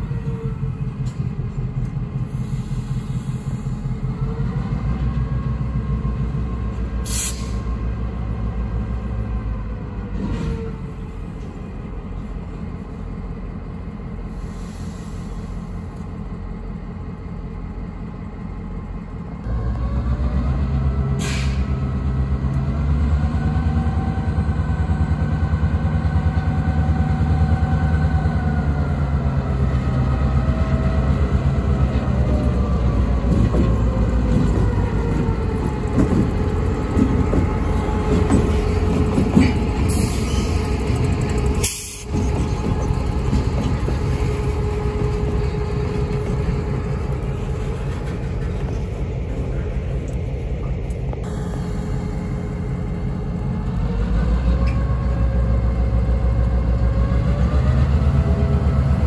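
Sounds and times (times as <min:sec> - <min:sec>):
diesel locomotive engine drone: 0:00.0 - 0:59.0
train wheels clicking over rail joints: 0:30.8 - 0:51.2.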